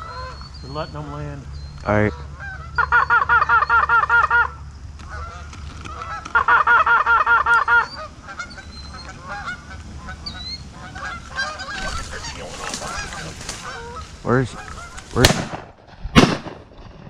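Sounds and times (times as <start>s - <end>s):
geese honking: 0.0s - 15.4s
goose call clucking rapidly: 2.0s - 15.3s.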